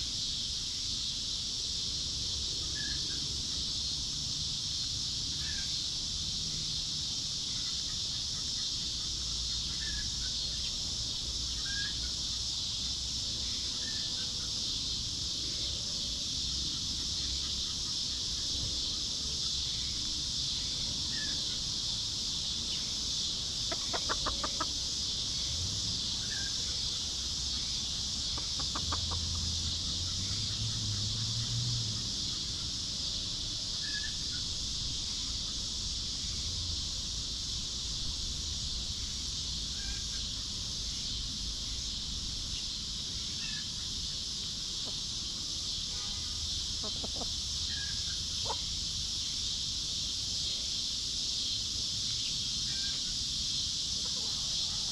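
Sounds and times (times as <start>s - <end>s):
steady high hiss: 0.0s - 54.9s
small birds chirping: 16.4s - 36.4s, 46.4s - 50.7s
hens clucking: 23.6s - 24.9s, 28.2s - 29.6s, 46.8s - 47.6s.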